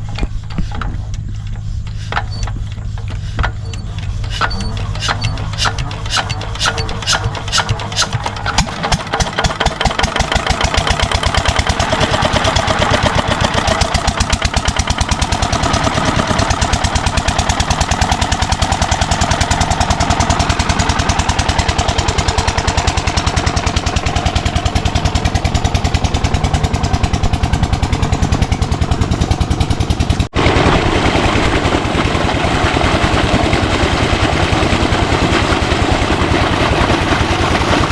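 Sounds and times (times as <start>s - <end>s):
diesel engine running: 0.0s - 37.9s.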